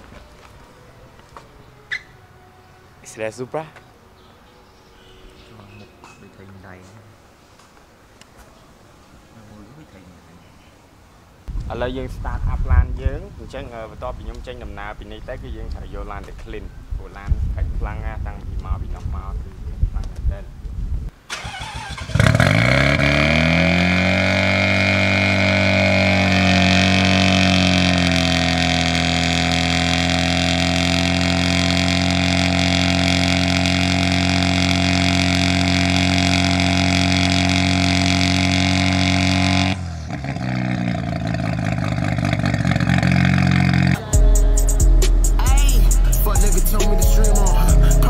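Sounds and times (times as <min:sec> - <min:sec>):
car engine revving: 0:21.4 - 0:48.0
deep bass: 0:42.6 - 0:48.0.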